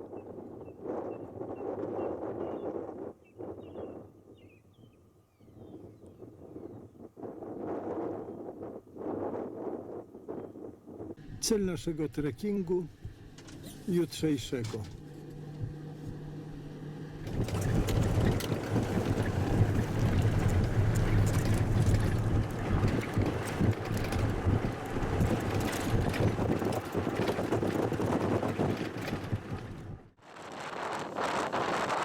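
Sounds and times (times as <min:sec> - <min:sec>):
wind on microphone: 0:00.0 - 0:11.4, 0:15.5 - 0:32.0
motorboat engine running: 0:11.2 - 0:30.1.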